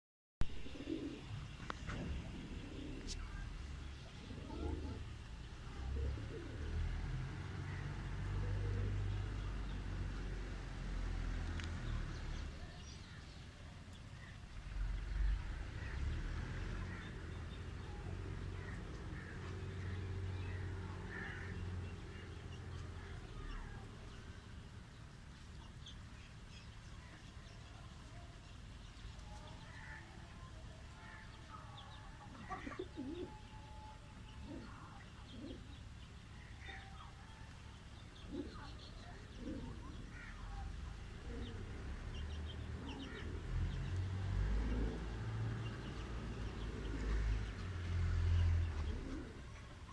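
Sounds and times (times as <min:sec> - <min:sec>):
birds chirping: 0:00.4 - 0:49.9
pigeons cooing: 0:00.5 - 0:07.1, 0:07.7 - 0:10.6, 0:31.0 - 0:33.6, 0:34.2 - 0:36.8, 0:37.9 - 0:49.9.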